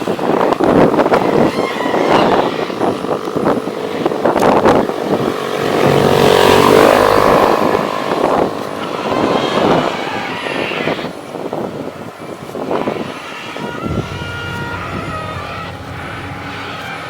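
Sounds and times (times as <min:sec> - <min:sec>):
small electric motor whirring: 0:12.4 - 0:17.0.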